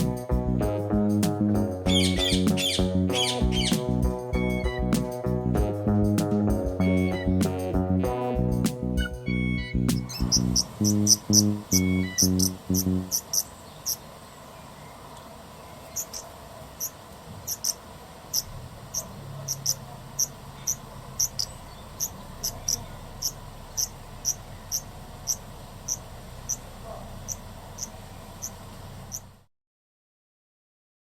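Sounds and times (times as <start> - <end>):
cricket chirping: 16.0 - 26.7
faint low rumble: 18.1 - 29.5.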